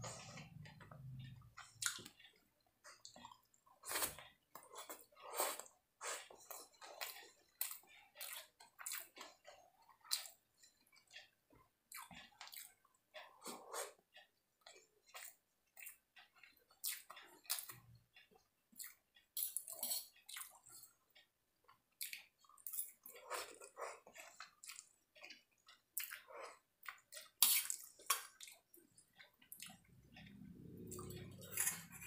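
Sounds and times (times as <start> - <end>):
chewing and wet mouth smacking: 0.0 - 14.0, 14.6 - 32.0.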